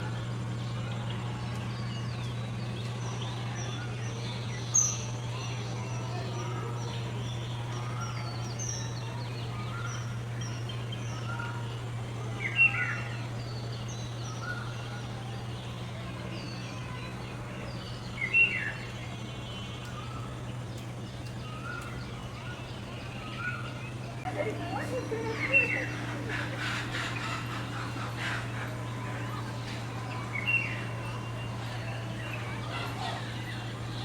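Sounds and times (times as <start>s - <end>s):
birds chirping: 0.0s - 34.0s
steady low hum: 0.0s - 34.0s.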